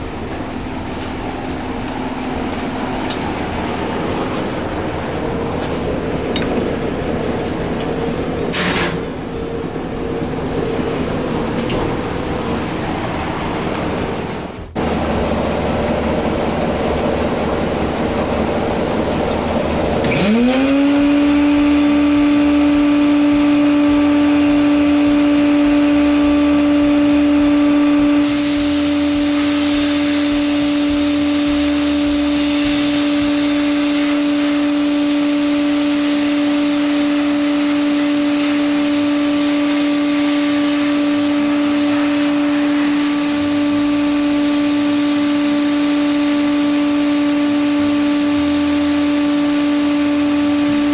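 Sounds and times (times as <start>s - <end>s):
air hiss of bead blasting: 8.5s - 9.0s, 28.2s - 50.9s
electric motor whining hum: 18.3s - 50.9s.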